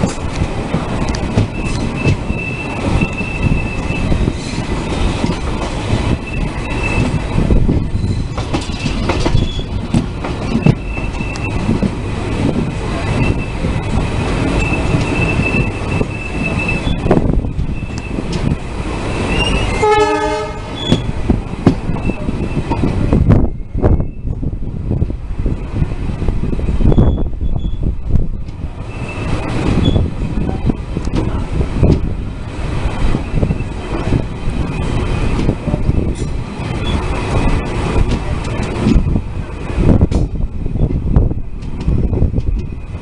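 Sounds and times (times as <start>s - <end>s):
train wheels clattering over rail joints: 0.0s - 23.4s, 26.8s - 43.0s
train horn blast: 19.6s - 20.8s.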